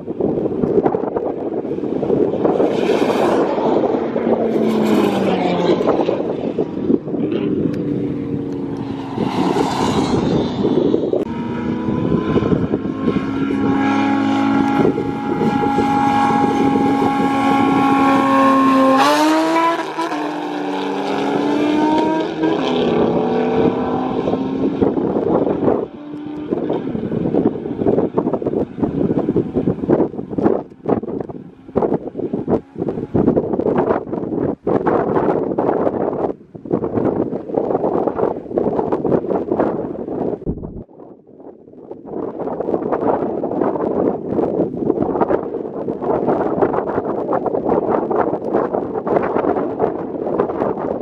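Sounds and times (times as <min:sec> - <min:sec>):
wind buffeting microphone: 0:00.0 - 0:51.0
racing engines revving and accelerating: 0:02.3 - 0:33.4
car speeding past: 0:02.4 - 0:06.7, 0:07.3 - 0:27.9.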